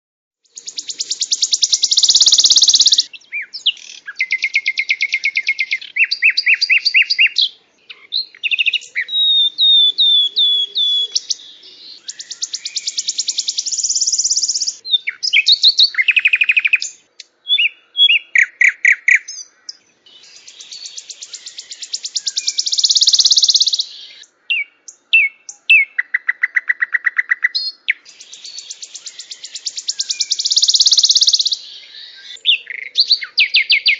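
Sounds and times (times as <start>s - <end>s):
songbird singing trills and whistles: 0.4s - 33.9s.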